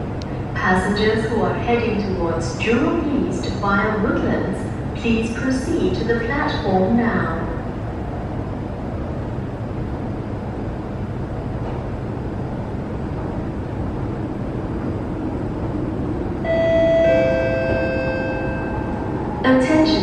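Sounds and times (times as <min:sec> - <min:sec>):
train rumbling into station: 0:00.0 - 0:20.0
two-tone ringing chime: 0:16.5 - 0:18.9.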